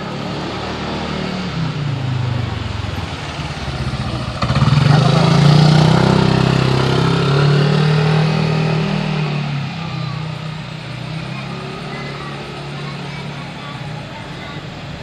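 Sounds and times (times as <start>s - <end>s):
motorcycle engine passing: 0.0s - 15.0s.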